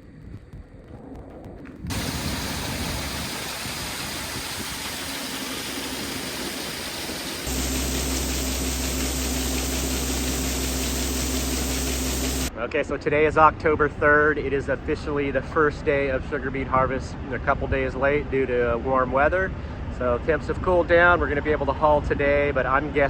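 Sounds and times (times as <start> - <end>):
engine running: 1.9 - 12.5
loud engine drone: 1.9 - 12.5.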